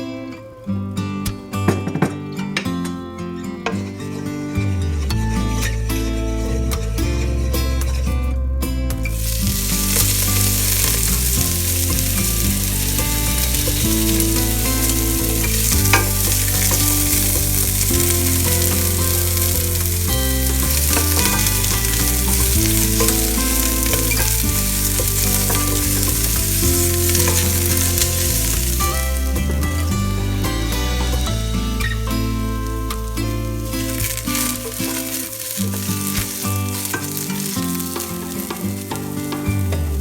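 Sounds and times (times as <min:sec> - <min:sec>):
background music: 0:00.0 - 0:40.0
food sizzling in hot oil: 0:09.2 - 0:39.7.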